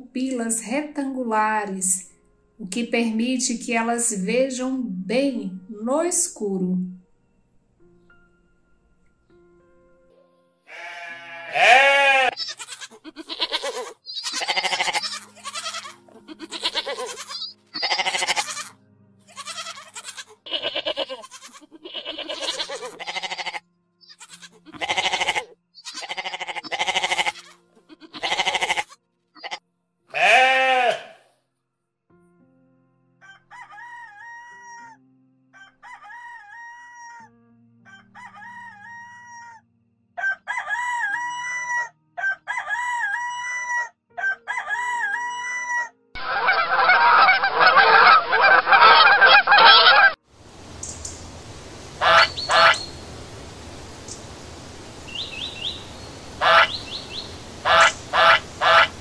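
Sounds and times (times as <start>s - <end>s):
rooster calling: 10.7s - 18.6s, 21.9s - 27.4s, 40.2s - 50.2s, 51.6s - 59.0s
goats bleating: 10.7s - 31.2s.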